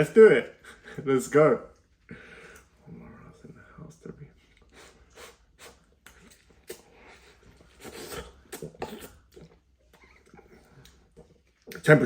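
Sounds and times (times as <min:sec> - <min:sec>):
wet mouth clicks: 0:04.7 - 0:11.8
person slurping noodles: 0:04.8 - 0:09.6.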